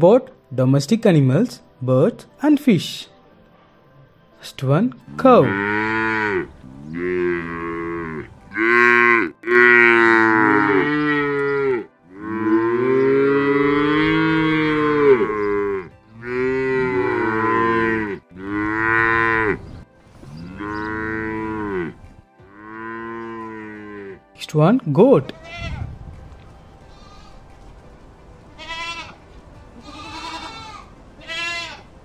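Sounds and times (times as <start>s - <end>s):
cattle mooing: 5.4s - 24.2s.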